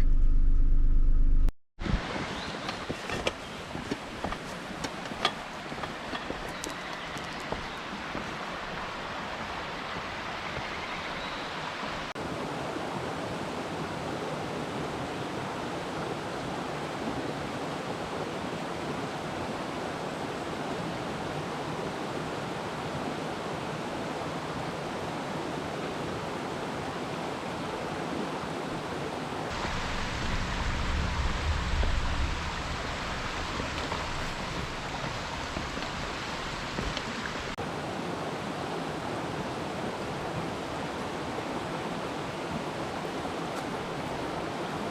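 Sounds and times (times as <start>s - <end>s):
low rumble: 0.0s - 1.6s, 29.6s - 35.4s
mountain stream rushing: 1.8s - 44.9s.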